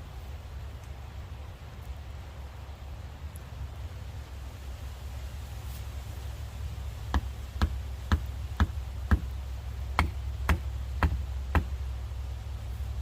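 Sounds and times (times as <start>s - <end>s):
steady low rumble: 0.0s - 13.0s
tool knocking on wood: 7.1s - 9.3s, 10.0s - 11.8s.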